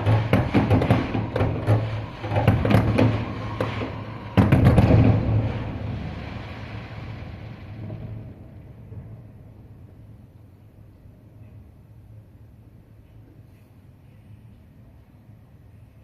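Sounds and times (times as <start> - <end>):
loud firework bang: 0.0 - 9.4
fireworks crackling pops: 0.0 - 9.6.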